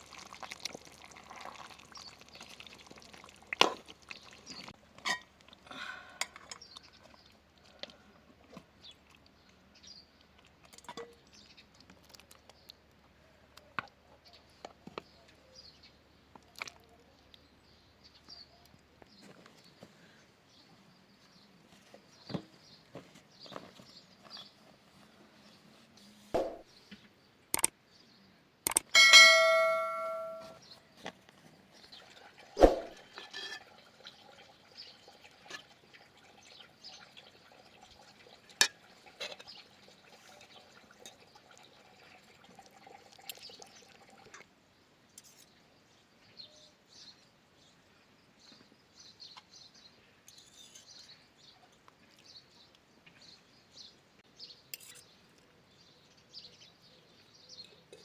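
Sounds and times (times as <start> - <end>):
sharp knock: 26.4 - 26.6
kitchenware clinking: 28.9 - 30.6
metal pot struck and ringing: 29.0 - 30.6.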